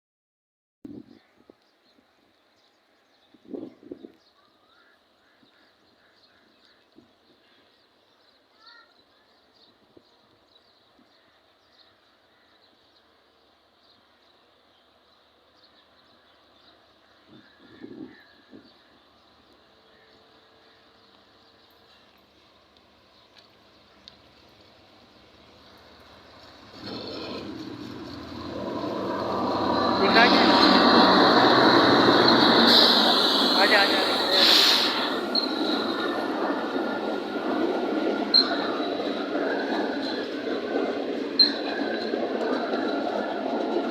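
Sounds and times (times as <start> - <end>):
freight train rumbling past: 13.0 - 43.9.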